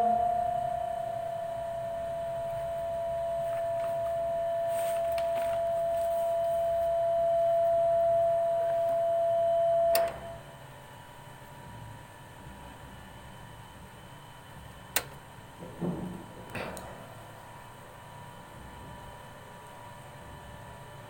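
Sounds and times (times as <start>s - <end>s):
microphone feedback tone: 0.0s - 10.4s
click: 9.9s - 10.2s, 14.9s - 15.2s.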